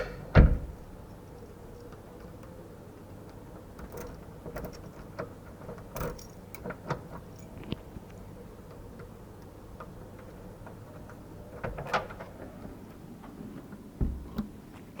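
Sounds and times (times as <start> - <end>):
low thump: 14.0 - 14.4.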